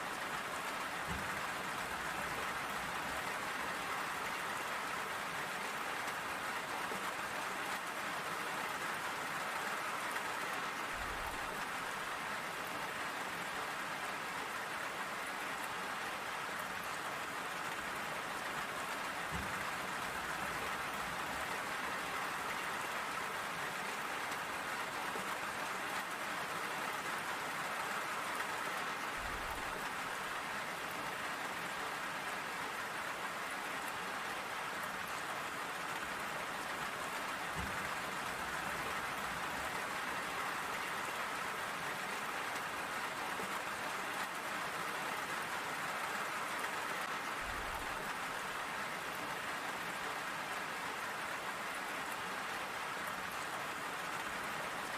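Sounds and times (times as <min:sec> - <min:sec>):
steady rain pattering: 0:00.0 - 0:54.9.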